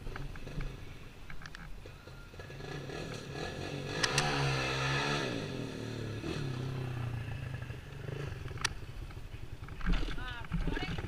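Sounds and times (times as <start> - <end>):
small off-road vehicle engine: 0.0 - 11.0
sharp clicks: 4.0 - 4.4.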